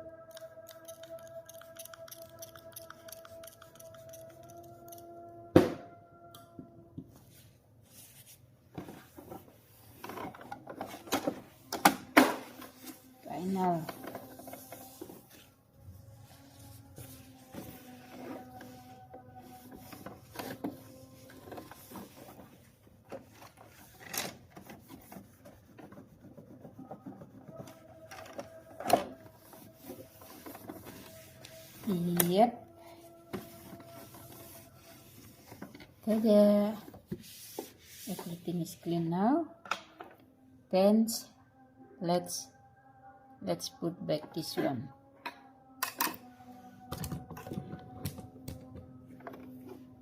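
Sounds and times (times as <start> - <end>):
rubbing and scraping: 12.3 - 32.5, 33.2 - 38.8.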